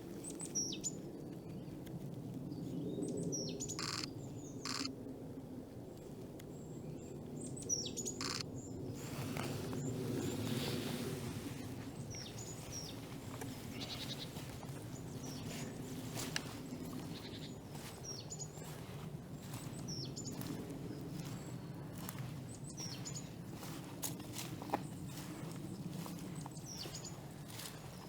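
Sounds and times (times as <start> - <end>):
small birds chirping: 2.6 - 4.9, 6.9 - 10.9, 11.5 - 28.0
sharp clicks: 3.8 - 4.1, 4.7 - 4.9, 8.2 - 8.4.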